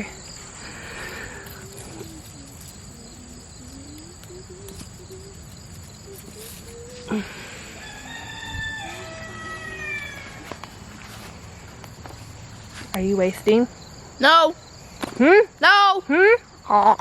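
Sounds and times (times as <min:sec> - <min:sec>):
high insect whine: 0:00.0 - 0:16.7
rooster crowing: 0:00.6 - 0:11.6.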